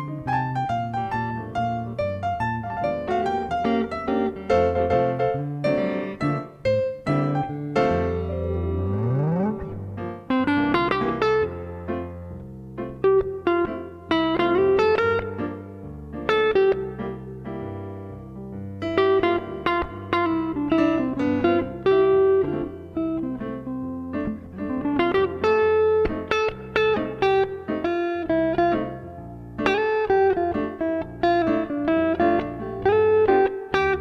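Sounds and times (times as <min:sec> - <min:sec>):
bass line: 0:00.0 - 0:12.8
plucked guitar notes: 0:00.0 - 0:34.0.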